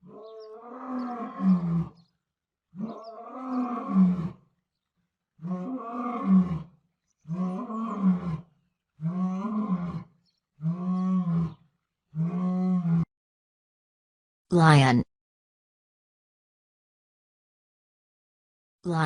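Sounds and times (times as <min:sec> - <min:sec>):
lion roaring: 0:00.0 - 0:02.0, 0:02.7 - 0:04.4, 0:05.4 - 0:06.7, 0:07.3 - 0:13.1.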